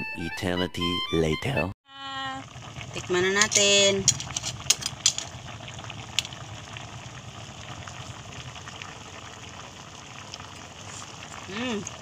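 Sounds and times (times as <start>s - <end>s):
broth bubbling at a boil: 2.0s - 12.0s.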